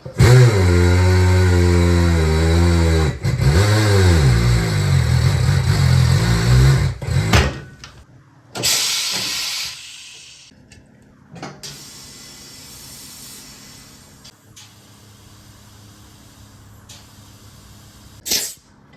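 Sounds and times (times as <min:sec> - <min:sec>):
vehicle engine running: 0:00.0 - 0:07.7
short burst of hissing: 0:08.6 - 0:10.5.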